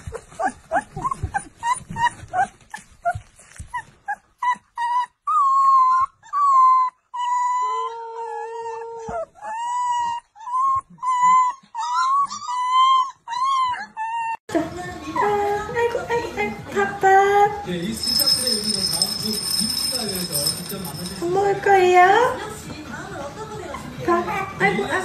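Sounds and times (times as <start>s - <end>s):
puppy whimpering yips: 0.0s - 14.4s.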